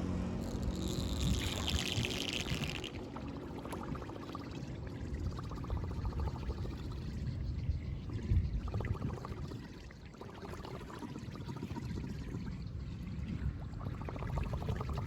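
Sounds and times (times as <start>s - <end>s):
water pouring through drain grate: 0.5s - 4.3s.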